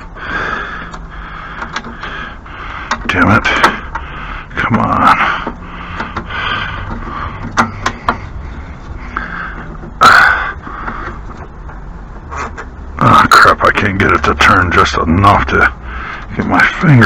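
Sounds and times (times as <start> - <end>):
man grunting and breathing hard: 0.0 - 11.3.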